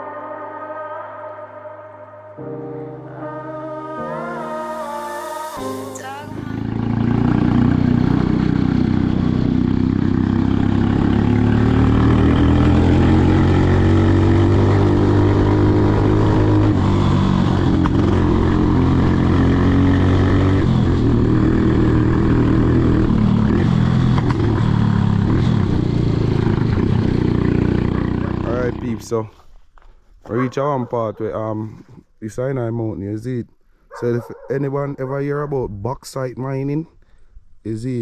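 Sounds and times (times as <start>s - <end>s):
motorcycle engine running: 6.2s - 29.1s
road and wind noise: 6.3s - 32.2s, 33.8s - 38.0s.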